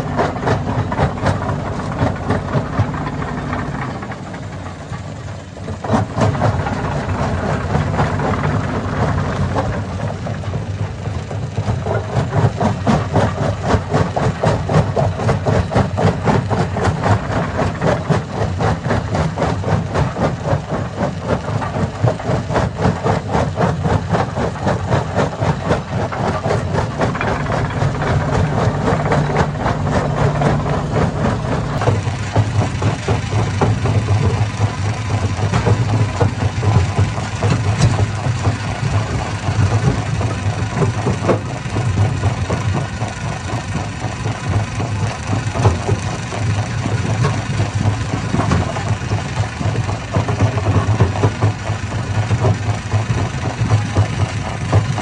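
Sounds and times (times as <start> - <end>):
engine droning: 0.0 - 55.0.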